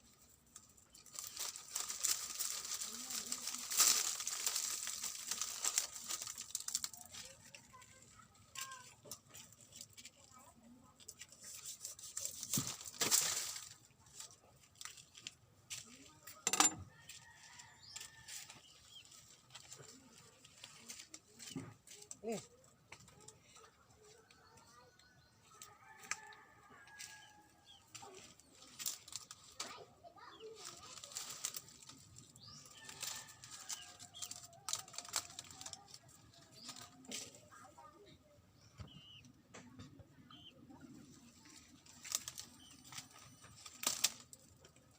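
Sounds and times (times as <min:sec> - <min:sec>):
dry wood crunching and snapping: 0:00.5 - 0:10.2, 0:12.0 - 0:15.9, 0:25.6 - 0:29.8, 0:30.6 - 0:37.5, 0:41.5 - 0:44.9
sharp wood crack: 0:43.6 - 0:44.4.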